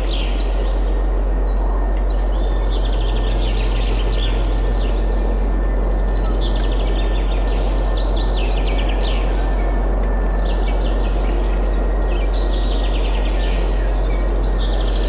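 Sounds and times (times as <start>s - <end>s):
songbirds chirping: 0.0s - 15.0s
deep low rumble: 14.6s - 15.0s.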